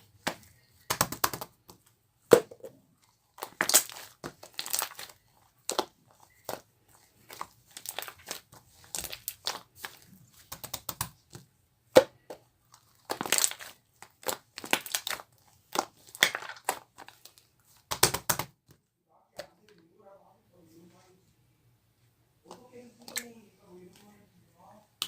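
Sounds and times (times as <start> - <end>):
slime crackling and popping: 3.2 - 11.4, 12.7 - 18.5.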